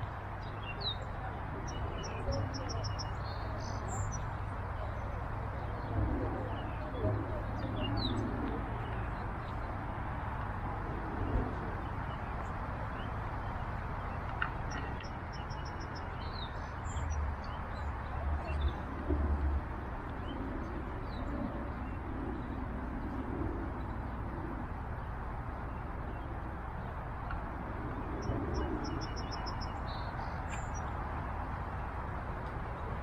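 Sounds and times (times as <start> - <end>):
steady outdoor hiss: 0.0 - 33.0.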